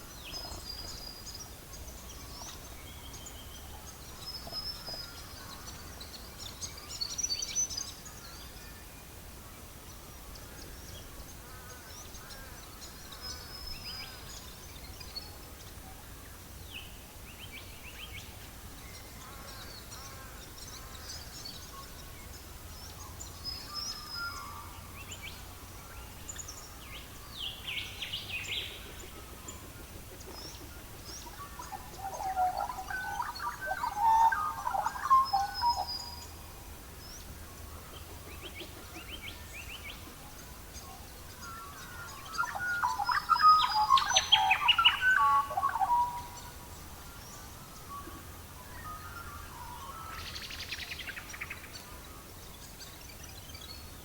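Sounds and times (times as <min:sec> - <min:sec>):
birds chirping and trilling: 0:26.3 - 0:36.4, 0:37.1 - 0:48.0.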